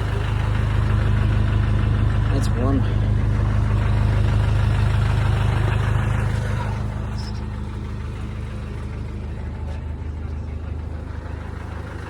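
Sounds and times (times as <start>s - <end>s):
pickup engine idling: 0.0s - 12.0s.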